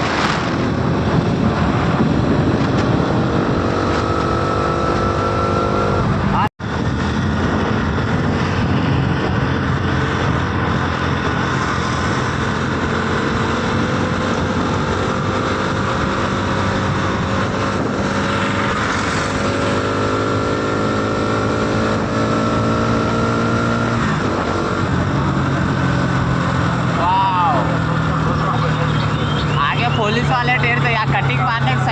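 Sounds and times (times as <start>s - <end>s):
motorcycle engine at high speed: 0.0s - 31.9s
wind rush: 0.0s - 31.9s.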